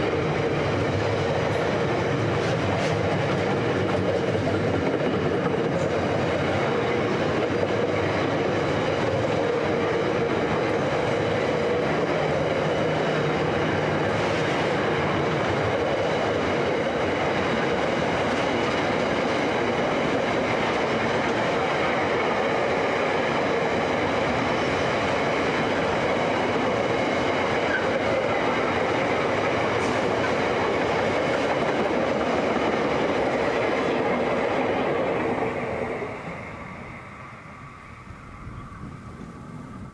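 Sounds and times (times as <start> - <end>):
steel wheels rumbling on rail: 0.0 - 39.9.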